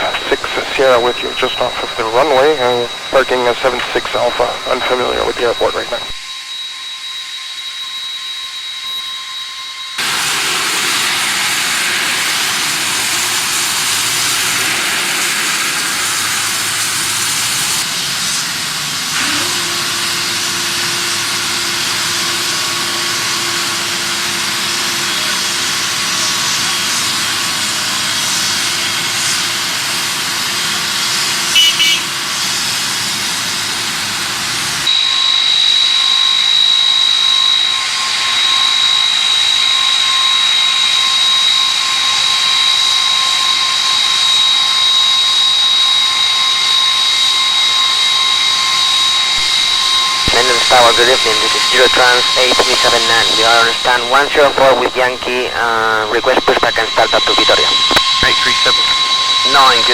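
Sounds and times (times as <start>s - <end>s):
steady hum: 0.0s - 6.3s, 49.3s - 59.9s
jet engine roar: 0.0s - 59.9s.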